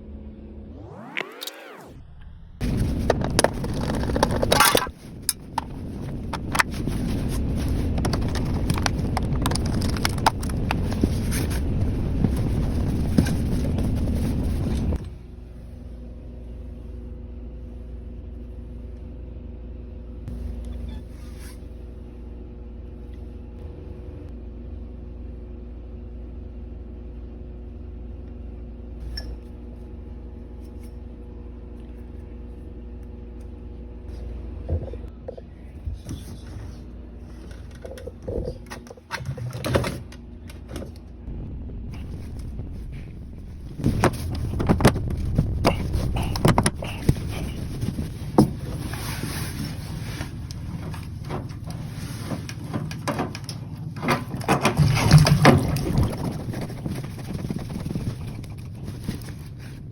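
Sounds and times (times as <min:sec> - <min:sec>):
steady low hum: 0:00.0 - 0:59.9
scraping and clattering with clicks: 0:02.6 - 0:15.1, 0:43.8 - 0:59.9.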